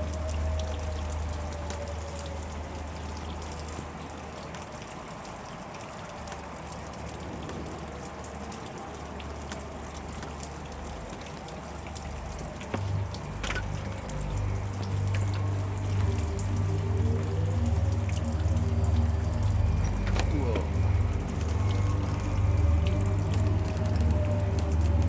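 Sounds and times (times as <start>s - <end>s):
heavy rain falling: 0.0s - 25.0s
faint wavering tone: 12.8s - 25.0s.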